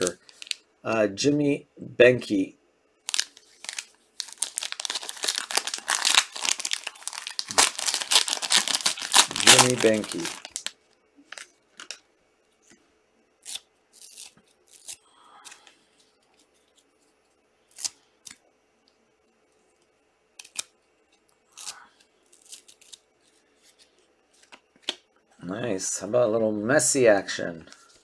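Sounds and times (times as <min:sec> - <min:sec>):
trading cards being flipped through: 0:00.0 - 0:00.6, 0:03.1 - 0:10.7.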